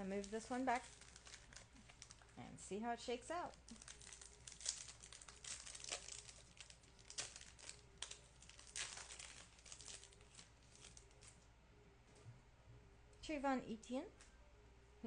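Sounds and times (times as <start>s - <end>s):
trading cards rustling: 3.6s - 11.4s.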